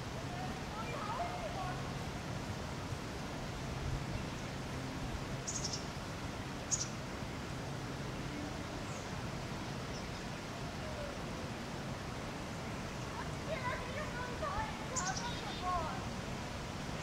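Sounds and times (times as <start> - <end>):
outdoor background noise: 0.0 - 17.0
small bird chirping: 5.4 - 5.9, 6.7 - 7.0, 14.9 - 15.6.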